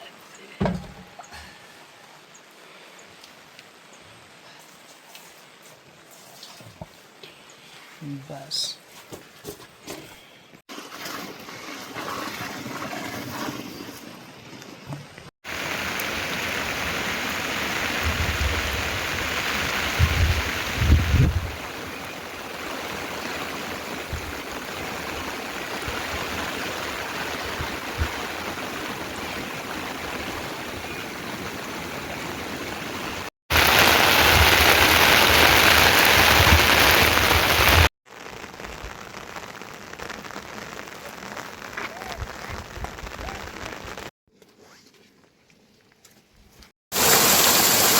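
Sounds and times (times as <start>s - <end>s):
steady rain hiss: 1.7s - 6.0s, 15.5s - 44.1s, 47.0s - 47.9s.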